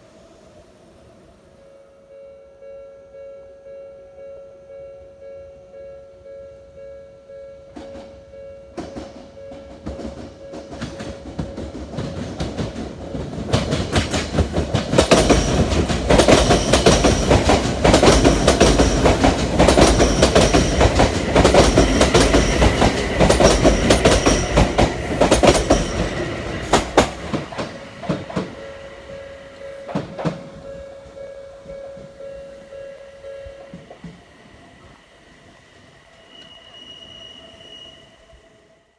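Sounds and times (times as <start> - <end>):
level crossing warning bell: 1.6 - 12.0, 15.1 - 34.1
train wheels clattering over rail joints: 8.8 - 28.6, 29.8 - 30.7.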